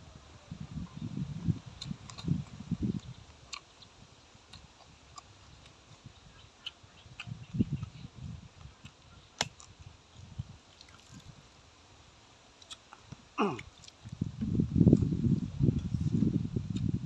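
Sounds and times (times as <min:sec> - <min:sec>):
person chewing food: 0:01.8 - 0:09.8, 0:12.6 - 0:14.2.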